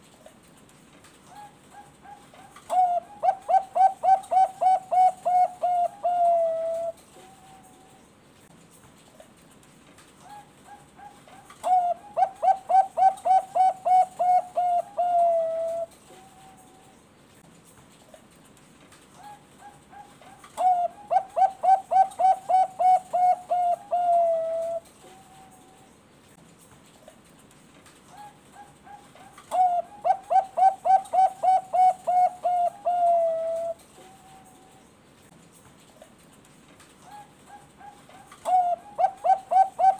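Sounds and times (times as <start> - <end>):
dove cooing: 1.3 - 7.9, 10.3 - 16.9, 19.2 - 25.8, 28.1 - 34.8, 37.0 - 39.9.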